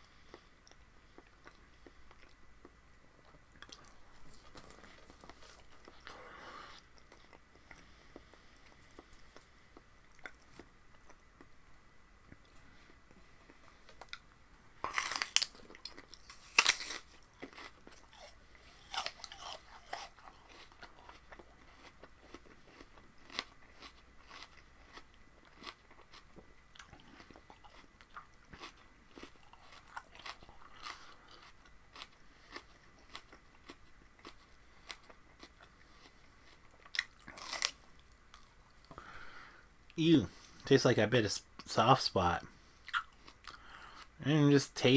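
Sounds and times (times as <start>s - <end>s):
person chewing crunchy food: 0.0s - 11.6s, 12.3s - 39.2s, 42.7s - 44.2s
crunching bites: 14.8s - 35.6s, 36.8s - 38.5s.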